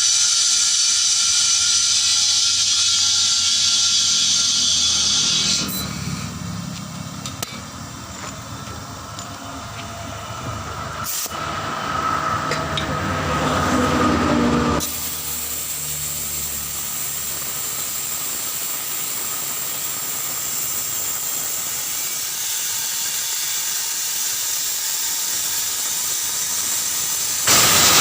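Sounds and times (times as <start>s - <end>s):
loud mechanical noise: 0.0s - 28.0s
compressed air hissing: 9.9s - 12.5s, 14.8s - 28.0s.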